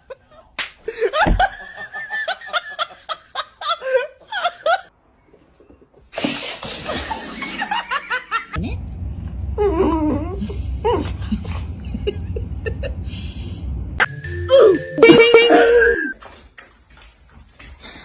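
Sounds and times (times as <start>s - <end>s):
people laughing: 0.9s - 4.9s, 11.0s - 13.0s.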